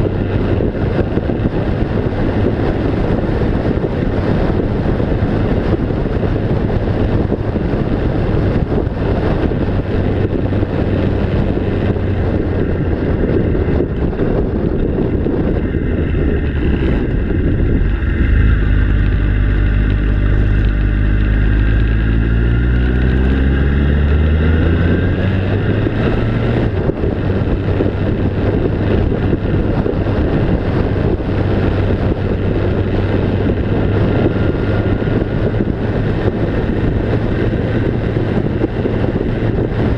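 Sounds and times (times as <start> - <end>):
low rumbling noise: 0.0 - 39.9
vehicle passing by: 14.9 - 32.0.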